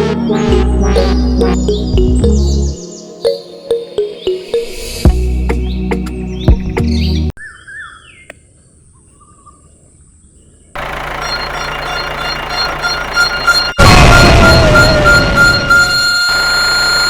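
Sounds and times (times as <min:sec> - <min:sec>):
music: 0:00.0 - 0:07.3
birds chirping: 0:00.2 - 0:13.8.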